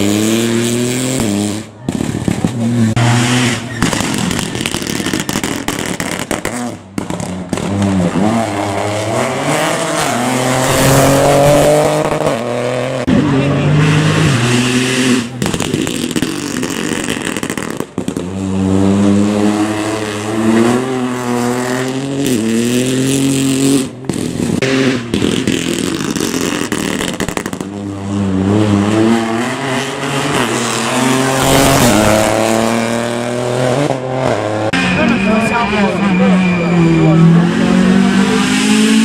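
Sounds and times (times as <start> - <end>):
rally car engine accelerating: 0.0 - 39.0.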